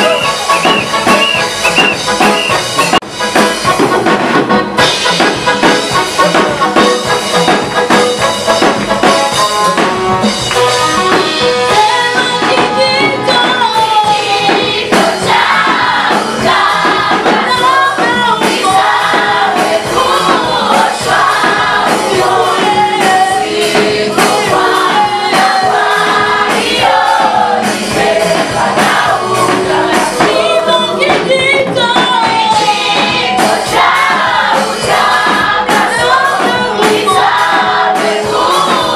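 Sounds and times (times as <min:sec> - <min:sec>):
choir singing gospel song: 0:00.0 - 0:38.9
instrumental backing music: 0:00.0 - 0:38.9.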